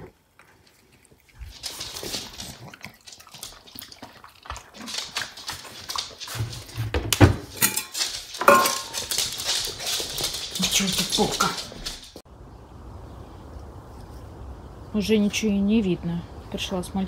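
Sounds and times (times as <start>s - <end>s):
scuffling: 4.5s - 12.2s.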